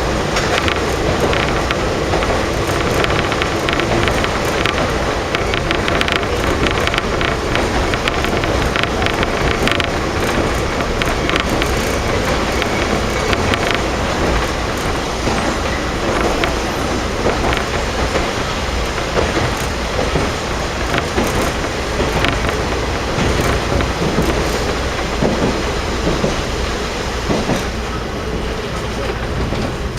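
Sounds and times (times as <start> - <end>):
diesel railcar engine drone: 0.0 - 29.9
wheels on rails: 0.0 - 29.9
wheel clicks: 0.4 - 15.0.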